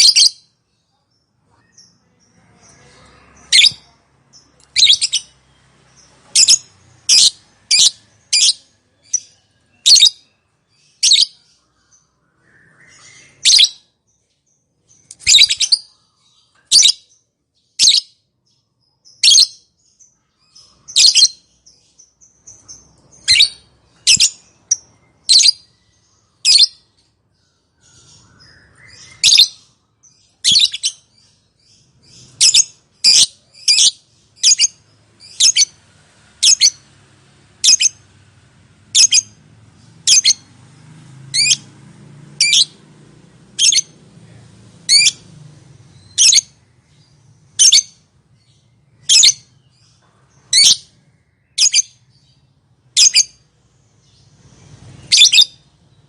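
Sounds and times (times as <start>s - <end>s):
lovebird high calls: 4.7s - 5.4s, 6.3s - 10.2s, 10.8s - 11.6s, 12.8s - 13.8s, 15.2s - 16.0s, 32.0s - 35.8s, 36.4s - 36.8s, 37.6s - 38.0s, 38.9s - 39.4s, 40.0s - 40.5s, 41.3s - 41.7s, 43.6s - 44.0s, 44.9s - 45.2s, 46.0s - 46.6s, 47.6s - 48.0s, 49.0s - 49.5s, 50.5s - 50.9s, 51.6s - 52.0s, 53.0s - 53.4s, 55.0s - 55.7s.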